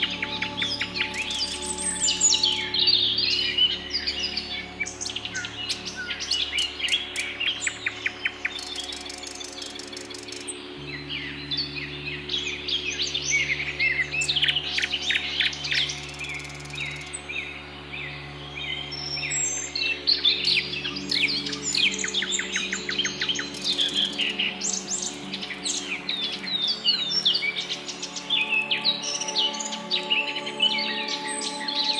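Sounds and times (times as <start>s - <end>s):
fast rattling bird trill: 0.0s - 10.6s, 14.2s - 17.2s, 19.4s - 30.0s
birds chirping and singing: 0.0s - 31.9s.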